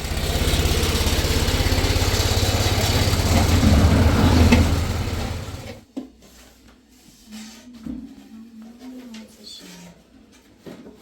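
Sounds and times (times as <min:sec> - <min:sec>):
small engine running: 0:00.0 - 0:05.8.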